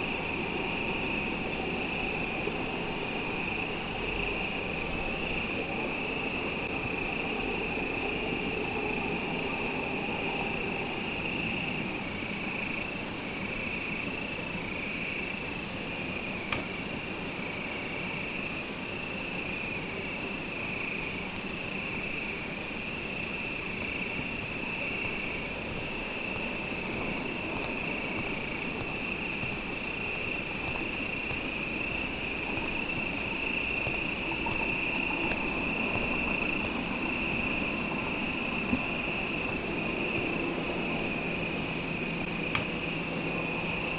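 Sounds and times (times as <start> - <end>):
insects trilling: 0.0 - 43.9
insect pulsing chirp: 22.8 - 43.9.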